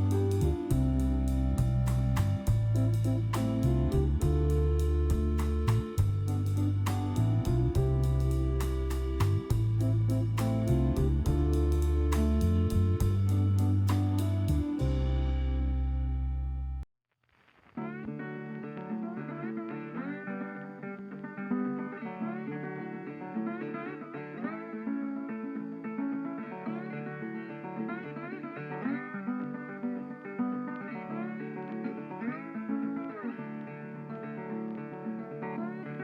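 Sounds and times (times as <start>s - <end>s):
plucked guitar melody: 0.0s - 16.6s, 17.8s - 36.0s
steady bass line: 0.0s - 16.8s.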